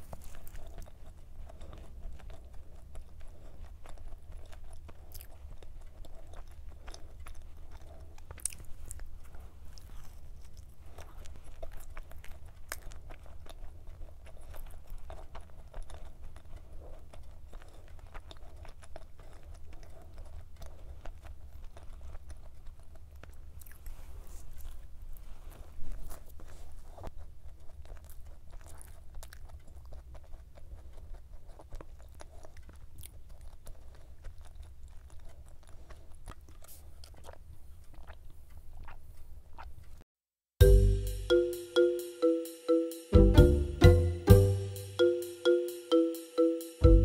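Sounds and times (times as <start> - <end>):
chewing crunchy pastry: 0.0 - 40.1.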